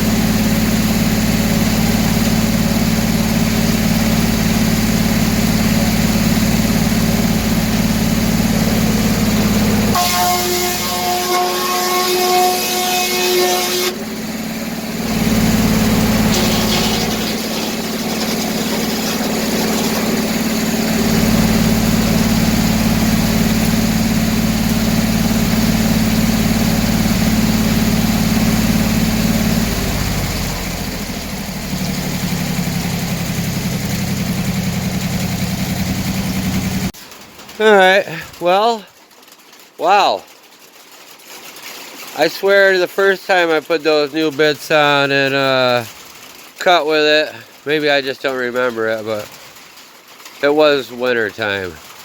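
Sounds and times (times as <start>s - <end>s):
sawmill engine running: 0.0s - 37.0s, 42.2s - 45.9s
thin whine: 7.1s - 23.8s.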